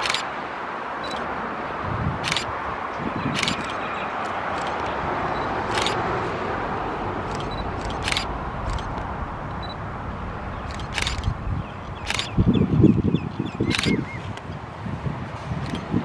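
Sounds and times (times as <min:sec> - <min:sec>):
sharp high clicks: 0:00.0 - 0:00.3, 0:01.0 - 0:01.3, 0:02.2 - 0:02.5, 0:03.3 - 0:03.8, 0:04.5 - 0:06.0, 0:07.2 - 0:09.8, 0:10.6 - 0:12.5, 0:13.6 - 0:14.5, 0:15.6 - 0:15.9
train wheels rumbling on track: 0:03.3 - 0:12.5.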